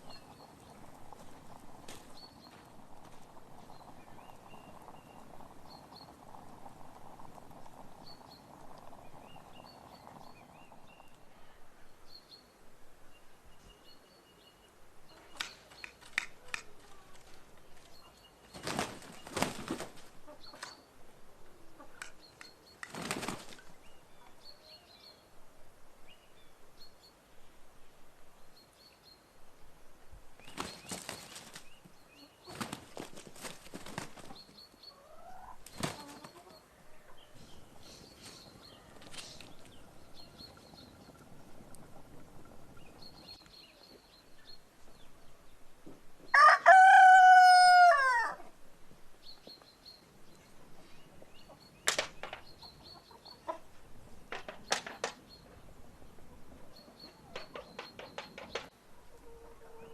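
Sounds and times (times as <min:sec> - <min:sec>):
small birds chirping: 0:00.0 - 0:46.5, 0:49.0 - 0:59.9
rustling or flapping bursts: 0:18.5 - 0:20.2, 0:22.8 - 0:23.8, 0:30.4 - 0:31.8, 0:32.5 - 0:34.4, 0:35.6 - 0:36.4.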